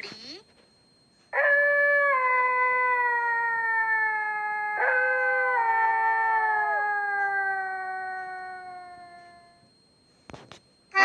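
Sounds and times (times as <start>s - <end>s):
fox howling: 1.4s - 9.6s.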